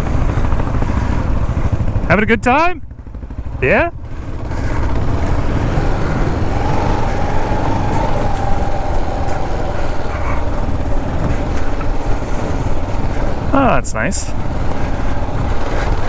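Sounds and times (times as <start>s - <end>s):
motorcycle engine running: 0.0s - 16.0s
wind noise on microphone: 4.3s - 13.6s.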